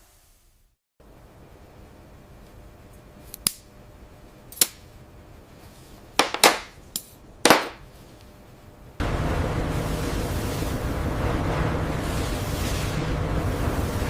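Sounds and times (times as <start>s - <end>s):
sharp knocks on hard metal: 6.2s - 6.7s, 7.5s - 7.8s.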